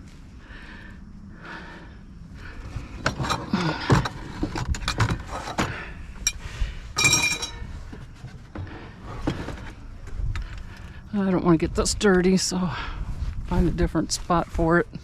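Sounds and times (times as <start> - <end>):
objects knocking and clattering: 3.0 - 6.4, 7.0 - 10.6.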